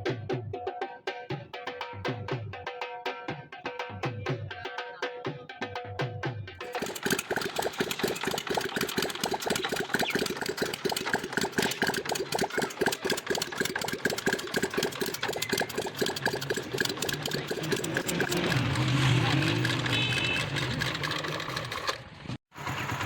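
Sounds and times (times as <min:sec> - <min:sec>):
motorcycle engine idling: 0:06.6 - 0:23.0.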